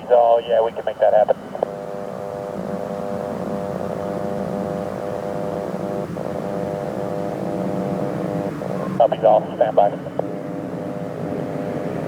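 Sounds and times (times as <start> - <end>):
aircraft engines humming: 0.0 - 12.0.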